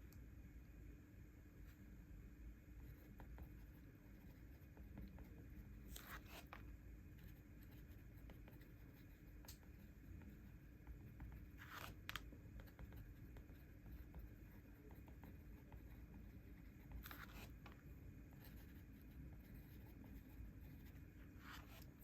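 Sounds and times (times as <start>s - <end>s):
paper rustling: 11.6s - 12.2s.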